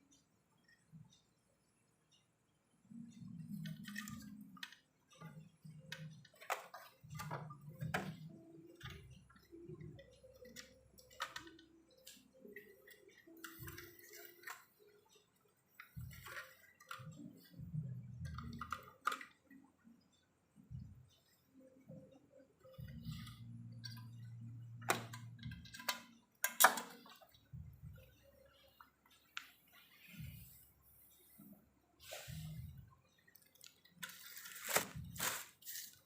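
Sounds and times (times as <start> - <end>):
tools clicking and knocking: 22.7 - 28.8.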